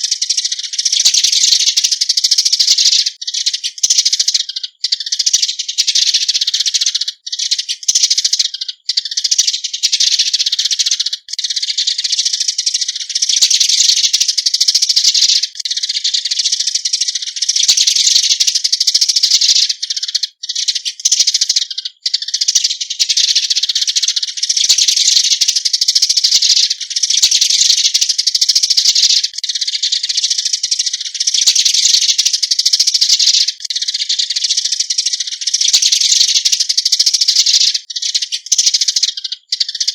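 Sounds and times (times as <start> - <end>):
sparrows chattering: 0.0 - 39.9.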